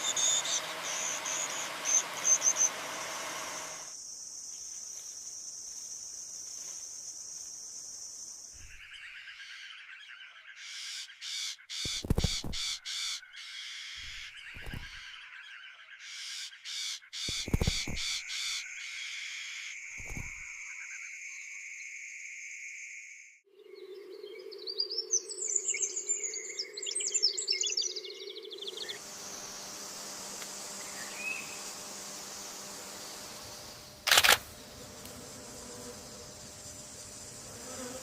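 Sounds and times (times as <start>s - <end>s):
small birds chirping: 0.0s - 19.3s, 24.3s - 29.9s, 30.6s - 34.4s.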